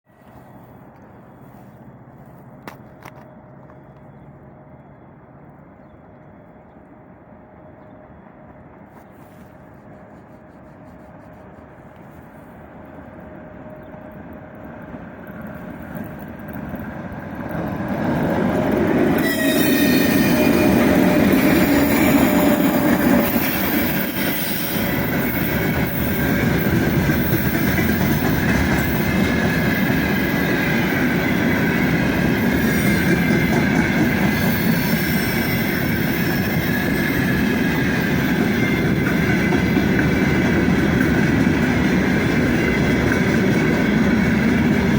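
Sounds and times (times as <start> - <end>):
freight train wagons rumbling: 0.1 - 44.9
high wheel squeal: 19.1 - 28.2, 32.4 - 37.8.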